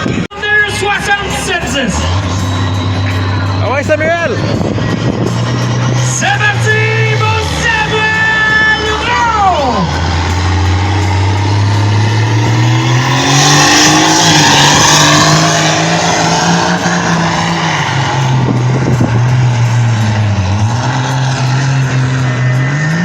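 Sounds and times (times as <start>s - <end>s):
engine revving under heavy load: 0.0s - 23.0s
tire and exhaust rush: 0.0s - 23.0s.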